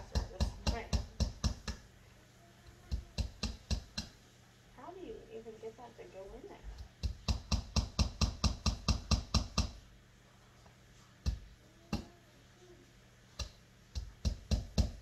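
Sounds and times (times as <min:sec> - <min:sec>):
hammer tapping nails into wood: 0:00.2 - 0:01.8, 0:02.9 - 0:04.2, 0:06.8 - 0:09.8, 0:13.4 - 0:15.0.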